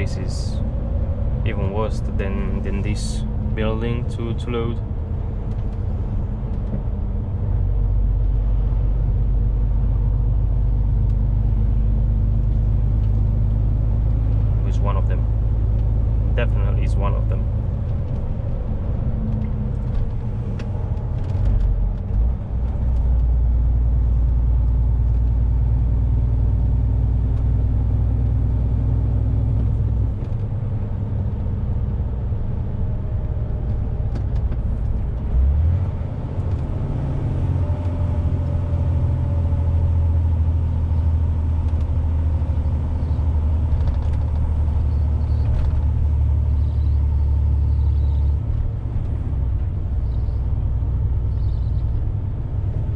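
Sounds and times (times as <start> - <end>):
road noise: 0.0 - 52.9
truck engine drone: 0.0 - 52.9.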